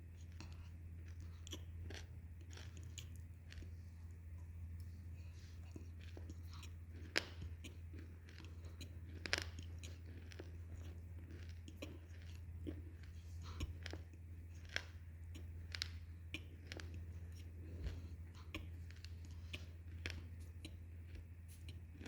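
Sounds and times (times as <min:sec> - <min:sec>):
wet chewing sounds: 0:00.0 - 0:22.0
mouth clicks and smacks: 0:00.2 - 0:03.7, 0:05.6 - 0:22.0.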